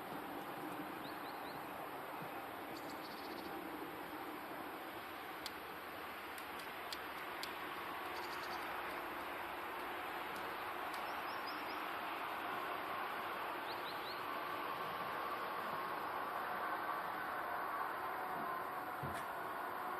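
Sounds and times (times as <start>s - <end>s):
faint bird chirps: 2.7s - 3.6s, 8.1s - 8.7s.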